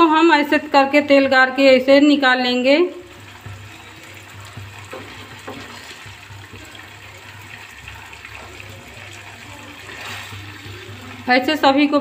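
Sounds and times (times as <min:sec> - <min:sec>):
oil sizzling in a pan: 0:00.0 - 0:12.0
wooden spatula scraping pan: 0:04.7 - 0:06.2.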